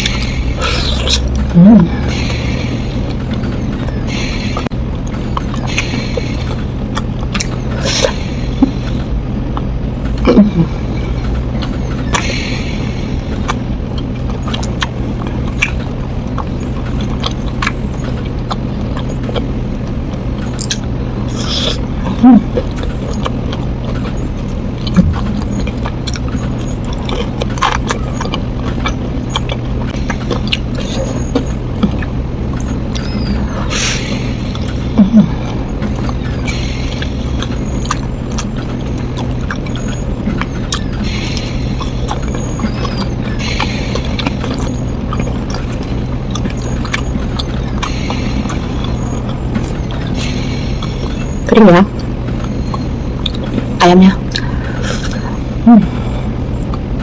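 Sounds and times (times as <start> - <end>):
wet mouth clicks: 0.0 - 2.5, 5.3 - 9.0, 13.4 - 19.5, 20.5 - 24.1, 24.7 - 51.2, 52.0 - 56.0
steady low hum: 0.0 - 57.0
chewing crispy snacks: 13.4 - 51.3.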